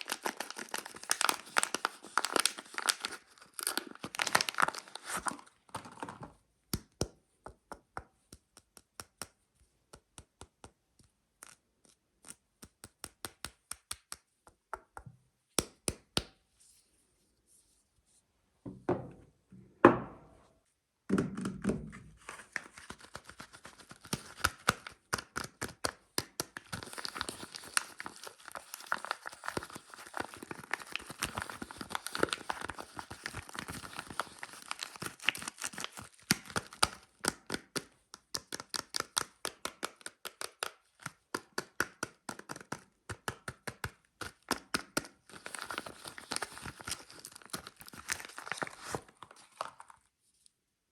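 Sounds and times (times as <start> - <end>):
wrapper tearing and crinkling: 0.0 - 6.0, 26.4 - 37.6, 44.3 - 50.0
taps on wrapped soap bar: 6.6 - 11.6, 12.3 - 16.4, 22.9 - 28.2, 28.8 - 48.6.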